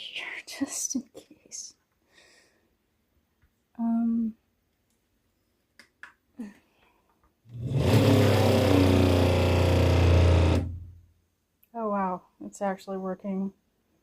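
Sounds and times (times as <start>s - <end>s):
water pump buzzing hum: 7.5s - 10.9s.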